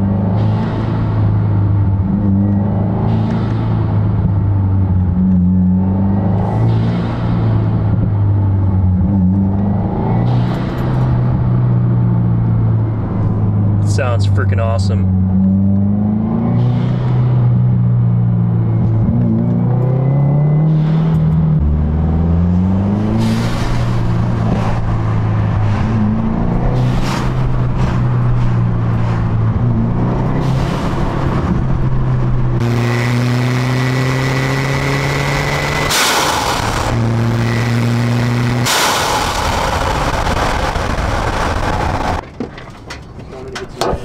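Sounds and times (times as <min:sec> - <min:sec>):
car engine revving through gears: 0:00.0 - 0:14.2, 0:15.0 - 0:42.2
intake air rushing: 0:35.8 - 0:37.2, 0:38.6 - 0:42.2.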